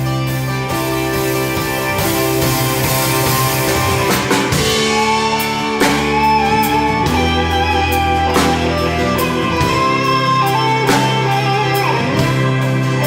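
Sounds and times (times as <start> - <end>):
held lead melody line: 0.0 - 13.0
live band playing: 0.0 - 13.0
drum and cymbal hits: 0.8 - 10.0.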